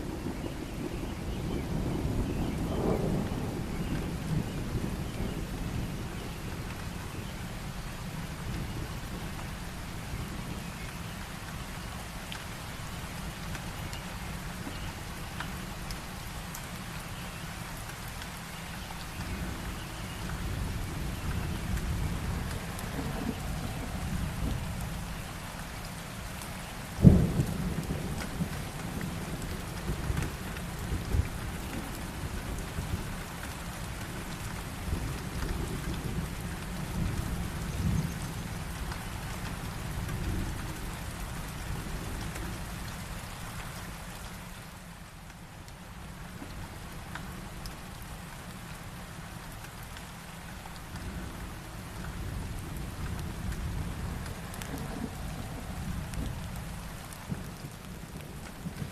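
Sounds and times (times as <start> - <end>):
thunder rumbling: 0.0 - 6.9, 19.3 - 42.8, 50.8 - 58.9
steady rain falling: 0.0 - 58.9.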